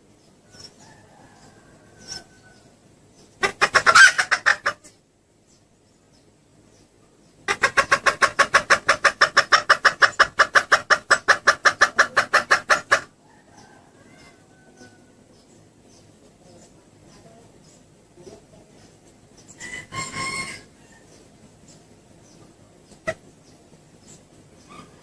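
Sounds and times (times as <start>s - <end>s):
hen rapid clucking: 3.2s - 5.0s, 7.4s - 15.2s, 18.2s - 25.0s.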